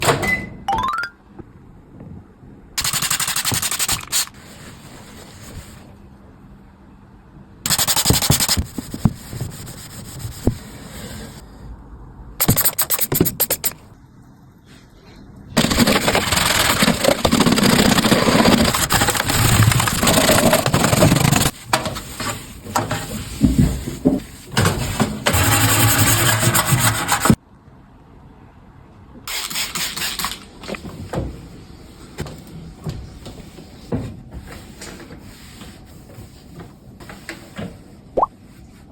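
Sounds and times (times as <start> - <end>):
scrubbing a microwave oven: 15.6 - 27.3.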